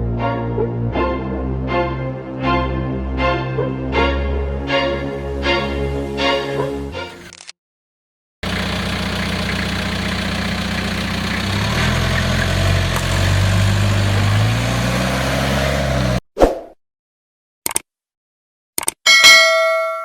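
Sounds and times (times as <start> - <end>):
pickup engine running: 8.4 - 16.2.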